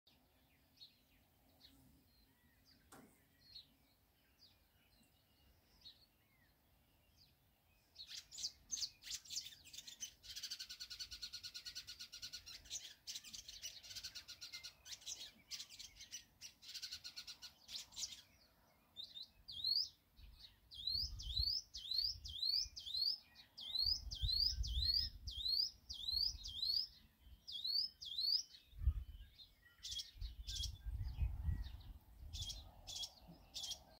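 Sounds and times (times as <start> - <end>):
high bird chirping: 7.3 - 33.9.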